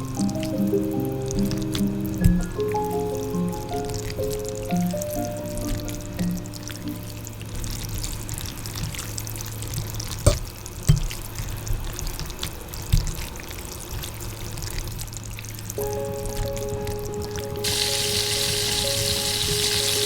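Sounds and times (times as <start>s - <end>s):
sharp knocks: 10.3s - 11.2s
food crackling and spattering in pan: 17.6s - 20.0s.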